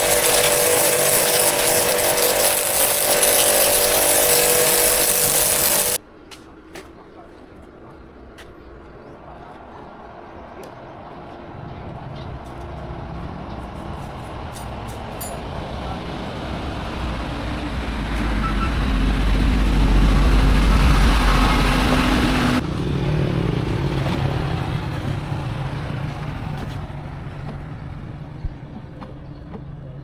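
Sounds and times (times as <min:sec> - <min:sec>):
vehicle engine and road noise: 0:09.9 - 0:30.0.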